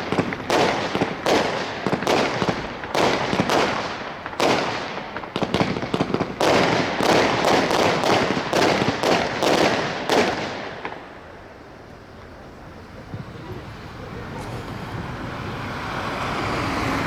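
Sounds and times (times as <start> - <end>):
fireworks shots and crackling: 0.0 - 11.6.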